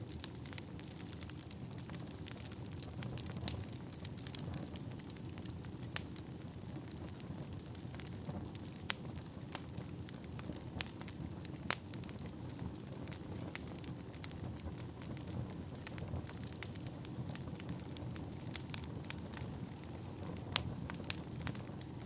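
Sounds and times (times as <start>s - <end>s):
fire crackling and popping: 0.0s - 22.0s
wood fire burning: 0.0s - 22.0s.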